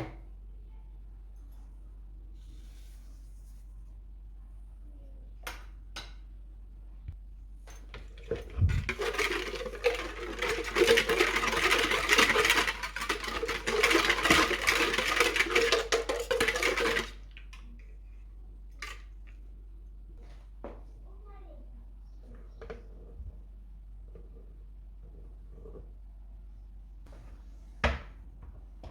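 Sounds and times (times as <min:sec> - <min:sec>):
utensils and dishes clattering: 0:07.8 - 0:17.7.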